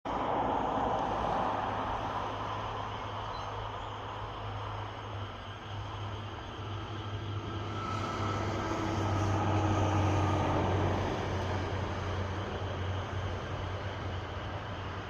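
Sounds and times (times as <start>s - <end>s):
electric train passing: 0.1s - 15.0s.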